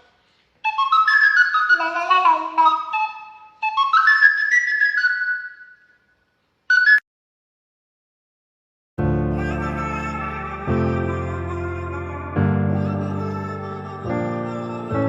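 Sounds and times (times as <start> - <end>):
raven whistling a melody: 0.6 - 7.0.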